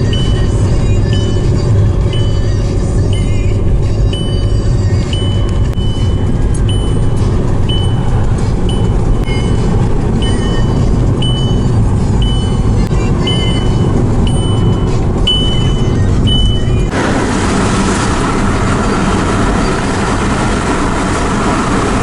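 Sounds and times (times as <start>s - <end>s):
short high beep: 0.0s - 16.9s
road and engine rumble: 0.0s - 22.0s.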